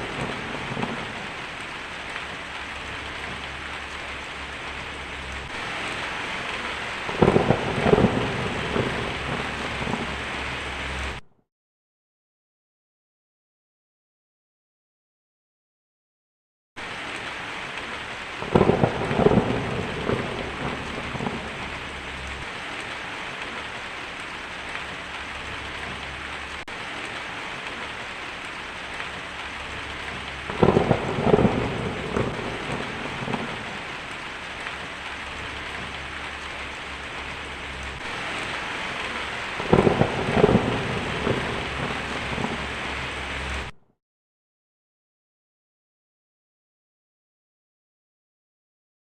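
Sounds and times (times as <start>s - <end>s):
crackling thunder: 0.0s - 11.2s, 16.8s - 43.8s
heavy rain: 0.0s - 11.2s, 16.8s - 43.8s.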